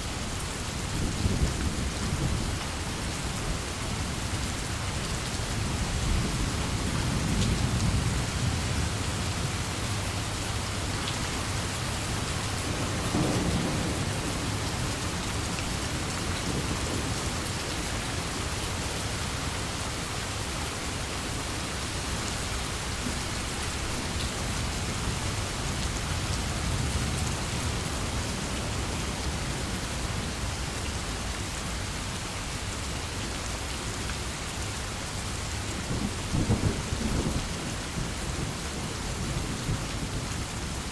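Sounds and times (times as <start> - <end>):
heavy rain: 0.0 - 40.9
thunder rumbling: 10.6 - 17.5.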